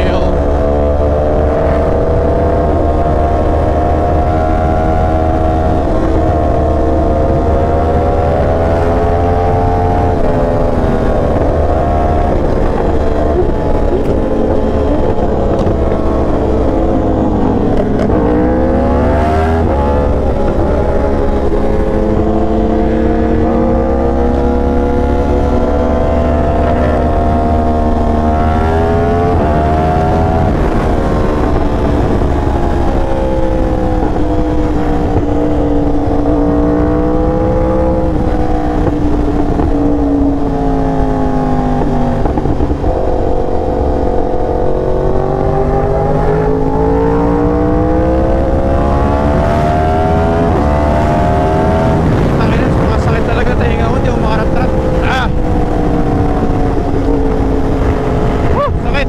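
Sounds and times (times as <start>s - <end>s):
motorcycle engine revving: 0.0s - 59.0s
wind rumble: 0.0s - 59.0s.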